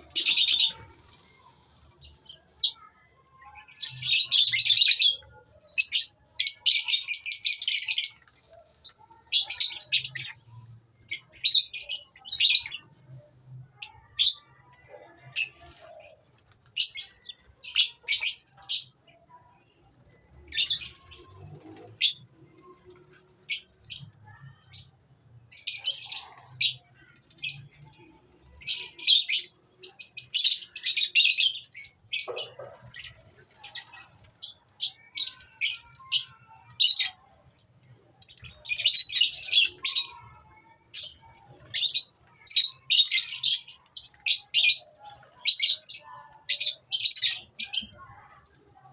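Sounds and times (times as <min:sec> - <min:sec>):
lovebirds chattering shrilly: 0:00.0 - 0:01.5, 0:28.7 - 0:37.2.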